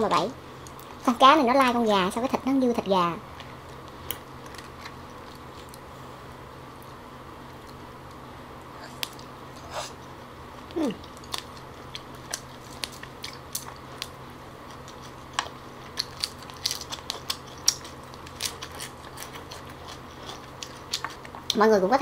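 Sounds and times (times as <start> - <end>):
crunching fresh lettuce: 10.7 - 21.6.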